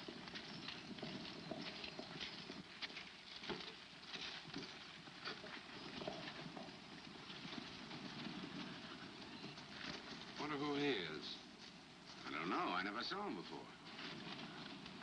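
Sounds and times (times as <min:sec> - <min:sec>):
film soundtrack hiss: 0:00.0 - 0:15.0
horse hoofbeats on dirt: 0:00.0 - 0:15.0.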